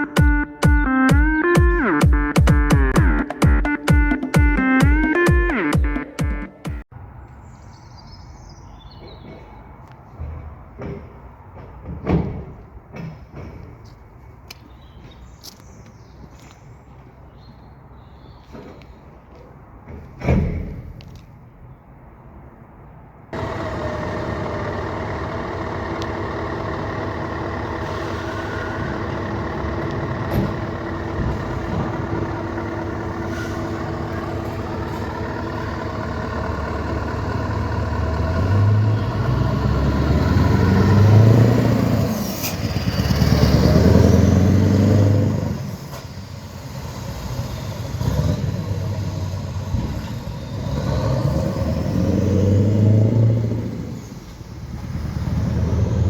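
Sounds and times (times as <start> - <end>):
truck engine revving: 23.4 - 56.0.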